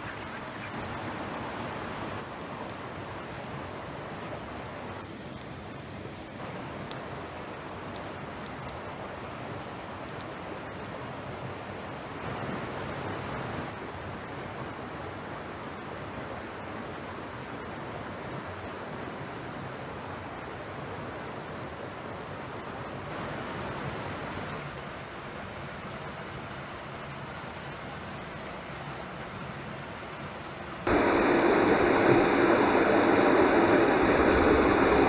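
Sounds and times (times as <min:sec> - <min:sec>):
stream rushing over rocks: 0:20.0 - 0:35.0.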